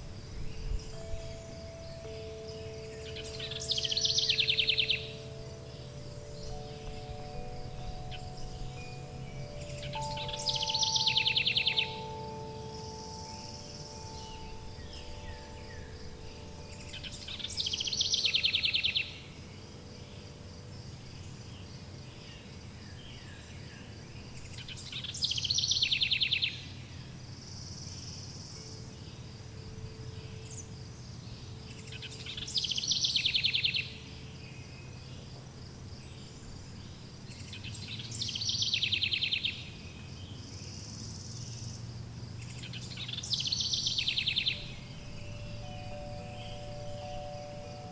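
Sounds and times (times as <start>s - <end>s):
songbird trilling: 0.0s - 20.3s, 20.9s - 26.8s, 30.0s - 34.6s, 36.1s - 41.8s, 42.4s - 47.9s
wind chimes ringing: 0.0s - 22.0s, 43.7s - 47.9s
insects chirring: 0.0s - 47.9s.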